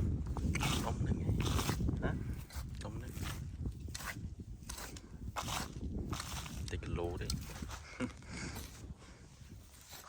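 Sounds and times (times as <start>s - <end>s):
short scrapes: 0.4s - 6.7s.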